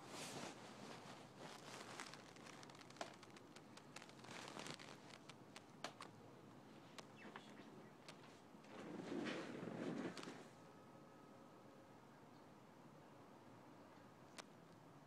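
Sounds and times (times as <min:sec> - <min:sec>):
light clicks and ticks: 0:01.4 - 0:08.3.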